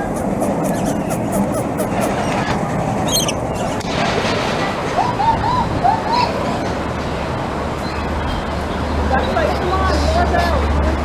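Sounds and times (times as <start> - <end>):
rising-and-falling calls: 0.0 - 3.8.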